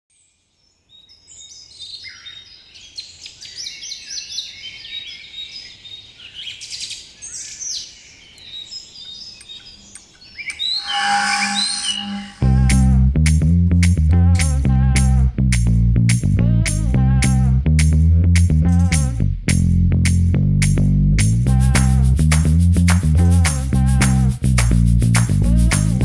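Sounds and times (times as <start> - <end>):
birds singing: 0.2 - 12.5
music with bass and drums: 12.4 - 26.0.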